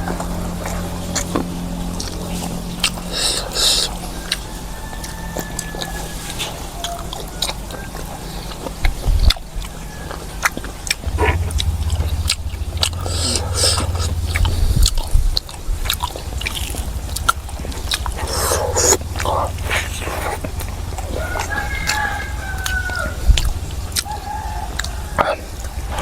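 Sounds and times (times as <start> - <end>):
person chewing food: 0.0 - 26.0
wet mouth clicks and smacks: 12.9 - 22.0.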